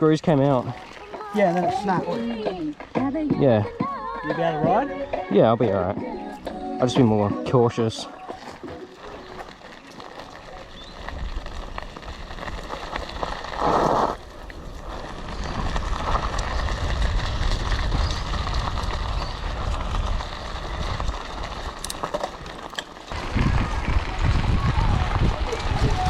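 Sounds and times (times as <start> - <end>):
bike tyres rumbling on dirt: 0.0 - 5.3, 7.0 - 26.0
wind on microphone: 10.3 - 26.0.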